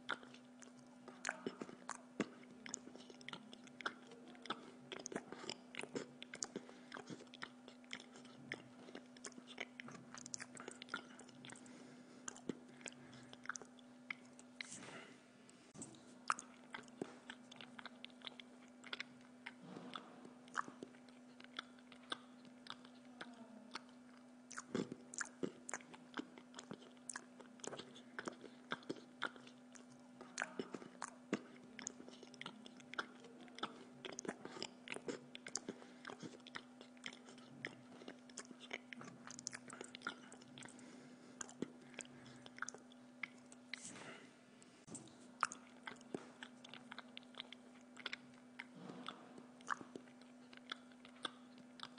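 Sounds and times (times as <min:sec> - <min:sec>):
person chewing pizza crust: 0:00.0 - 0:51.9
steady low hum: 0:00.0 - 0:51.9.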